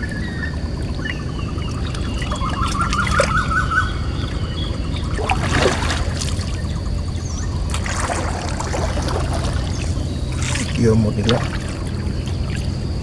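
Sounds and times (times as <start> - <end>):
warbling whistle: 0.0 - 7.6
river water splashing and trickling: 0.0 - 13.0.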